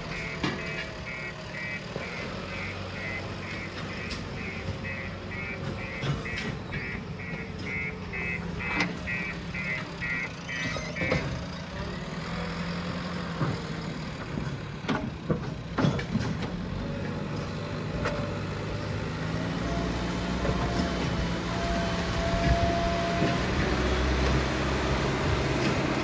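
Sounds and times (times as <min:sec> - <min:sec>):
reversing alarm beeping: 0:00.0 - 0:11.9, 0:18.7 - 0:26.0
diesel engine running: 0:00.0 - 0:26.0.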